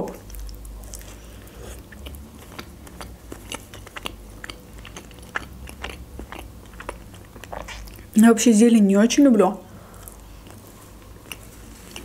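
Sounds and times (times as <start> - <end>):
biting and chewing food: 0.0 - 8.2, 9.9 - 12.0.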